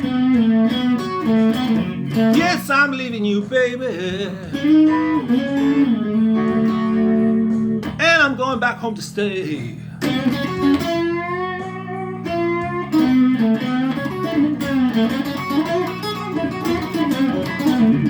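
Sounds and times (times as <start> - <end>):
electric guitar blues lead: 0.0 - 18.0
person singing: 1.4 - 13.2.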